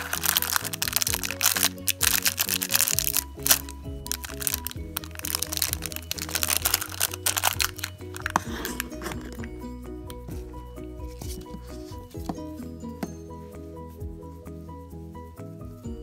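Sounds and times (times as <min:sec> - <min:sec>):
plastic bag crinkling: 0:00.0 - 0:09.5
background music: 0:00.0 - 0:16.0.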